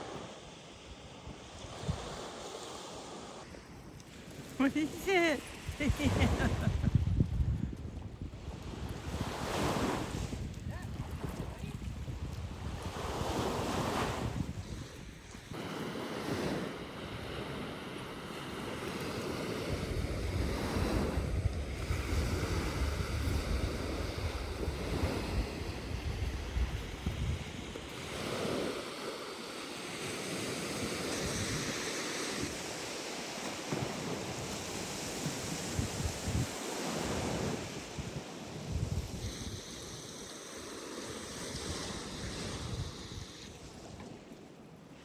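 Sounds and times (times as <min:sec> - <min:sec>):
waves washing onto sandy beach: 0:00.0 - 0:45.0
wind gusting on microphone: 0:03.5 - 0:28.9, 0:33.7 - 0:44.3.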